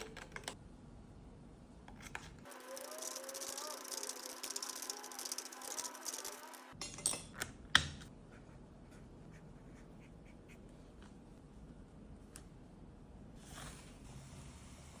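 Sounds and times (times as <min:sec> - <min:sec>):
hard objects clinking: 0:02.6 - 0:07.4.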